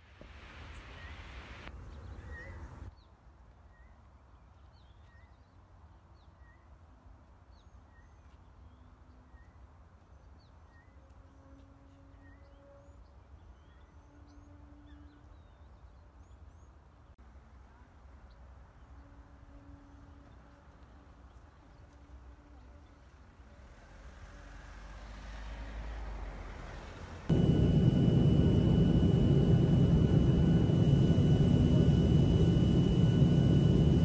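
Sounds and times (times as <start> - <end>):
loud rush of noise: 27.3 - 34.0.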